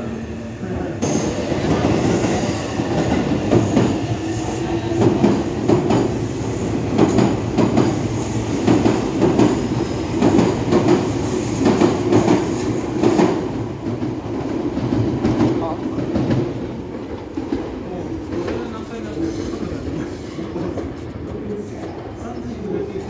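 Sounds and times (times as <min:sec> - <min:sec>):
train wheels clacking over rail joints: 0:06.9 - 0:08.0.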